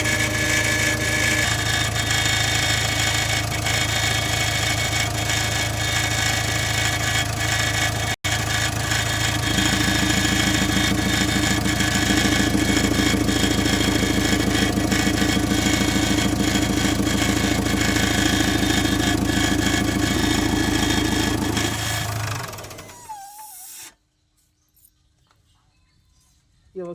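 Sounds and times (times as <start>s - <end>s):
fast even pulsing: 0.0s - 3.5s, 8.8s - 23.9s
diesel engine running: 0.0s - 23.3s.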